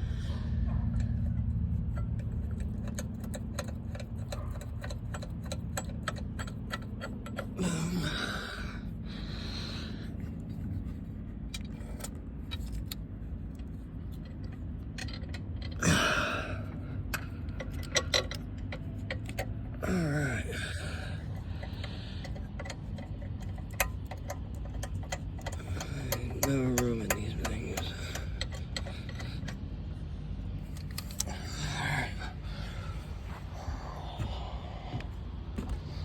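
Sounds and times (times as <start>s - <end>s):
steady low hum: 0.0s - 36.0s
hand ratchet clicking: 1.2s - 8.4s, 14.2s - 29.9s, 30.7s - 31.9s.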